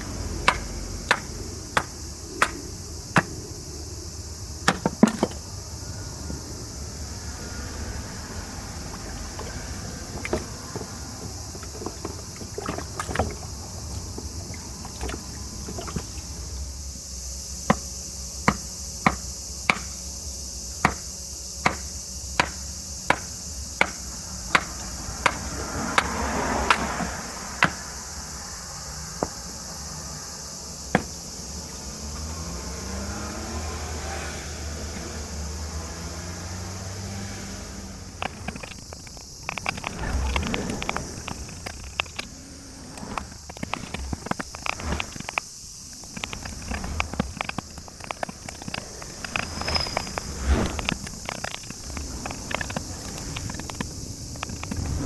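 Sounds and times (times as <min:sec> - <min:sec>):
tool striking green wood: 0:17.7 - 0:20.0, 0:20.8 - 0:21.0, 0:21.6 - 0:25.4.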